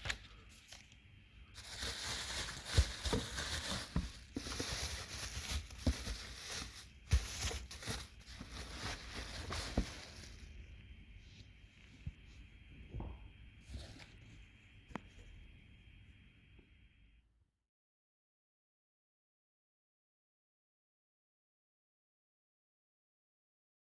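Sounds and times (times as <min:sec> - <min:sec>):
packaging rustling: 0:00.0 - 0:01.0, 0:01.6 - 0:10.6.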